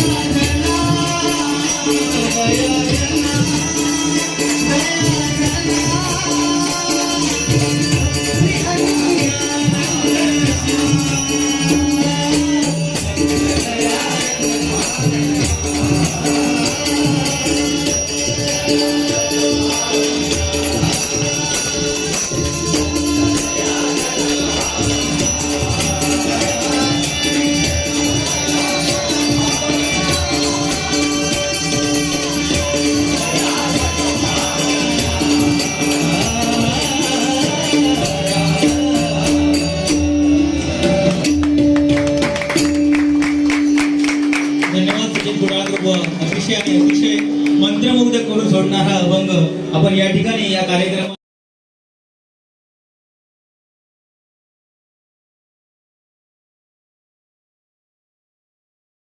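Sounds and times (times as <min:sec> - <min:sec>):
devotional singing: 0:00.0 - 0:41.5
jingling percussion: 0:00.0 - 0:50.4.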